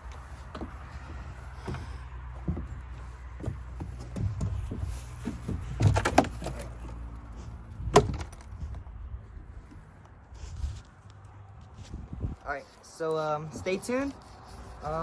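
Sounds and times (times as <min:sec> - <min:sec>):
clattering knocks and clunks: 0:00.0 - 0:08.9.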